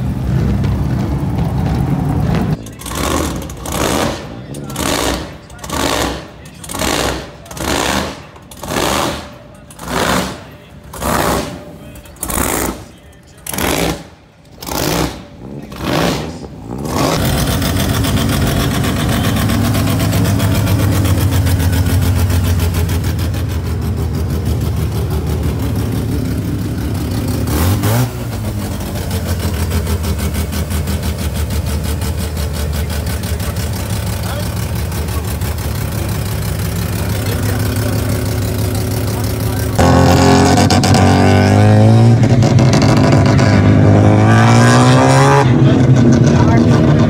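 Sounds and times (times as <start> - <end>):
car engine running steadily: 0.0 - 44.4, 45.0 - 47.0
car engine revving in blips: 0.0 - 47.0.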